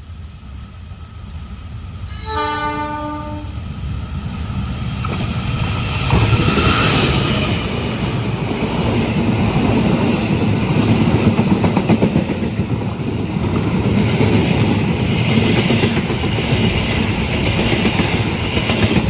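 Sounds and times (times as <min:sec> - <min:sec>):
train passing rumble: 0:00.0 - 0:19.0
train horn blast: 0:02.1 - 0:03.6
wheels clattering on rails: 0:05.0 - 0:19.0.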